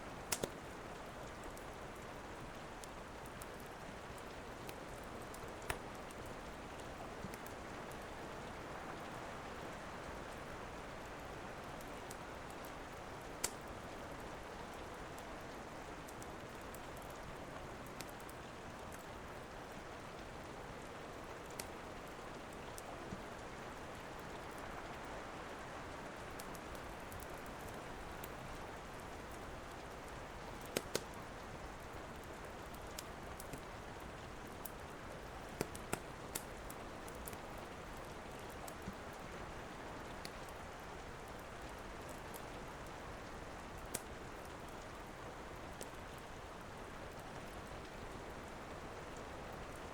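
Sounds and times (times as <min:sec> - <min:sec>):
steady rain falling: 0:00.0 - 0:49.9
fireplace fire popping: 0:00.1 - 0:08.0, 0:11.8 - 0:13.8, 0:21.5 - 0:21.8, 0:26.2 - 0:28.4, 0:29.0 - 0:39.1, 0:40.1 - 0:45.1.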